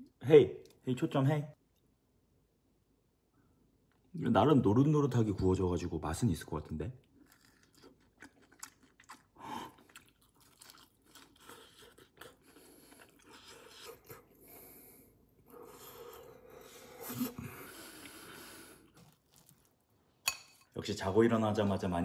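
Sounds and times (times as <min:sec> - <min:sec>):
crunchy chewing: 0:07.2 - 0:14.2, 0:17.9 - 0:19.8.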